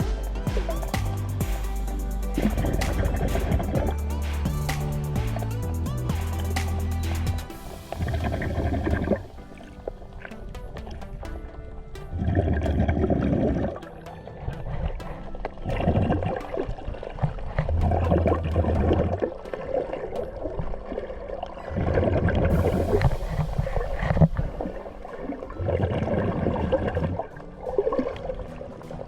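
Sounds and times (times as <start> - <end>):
muffled underwater water sloshing: 7.5 - 29.0.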